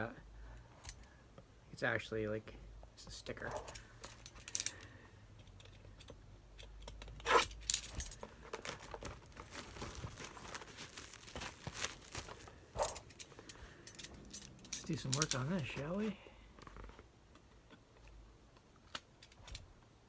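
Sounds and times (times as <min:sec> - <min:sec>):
plastic wrap crinkling and tearing: 0:07.8 - 0:13.2.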